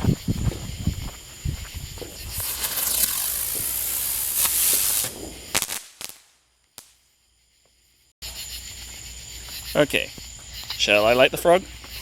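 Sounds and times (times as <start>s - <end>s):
firework hissing: 2.0s - 6.9s
sharp pops: 2.1s - 7.0s.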